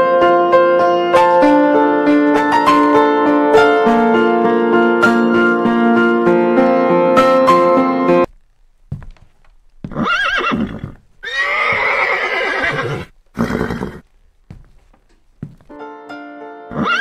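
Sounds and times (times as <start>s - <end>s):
horse neighing: 9.9s - 14.0s, 16.7s - 17.0s.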